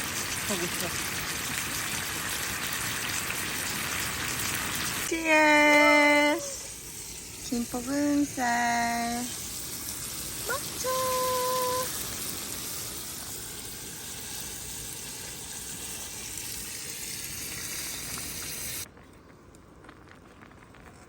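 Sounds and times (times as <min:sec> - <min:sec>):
food sizzling in a pan: 0:00.0 - 0:18.9
small crackles: 0:17.5 - 0:21.0.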